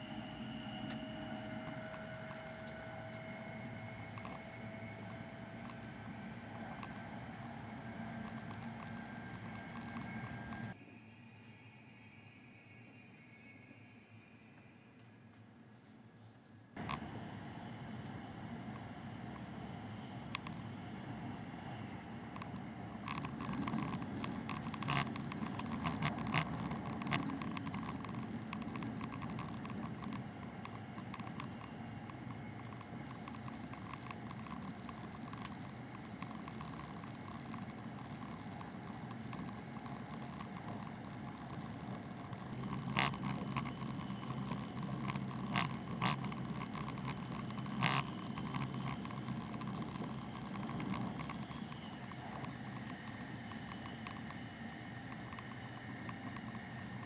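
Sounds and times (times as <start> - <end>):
rumble of wheels and air: 0.0 - 10.8, 12.2 - 57.0
sharp clicks: 20.2 - 57.0.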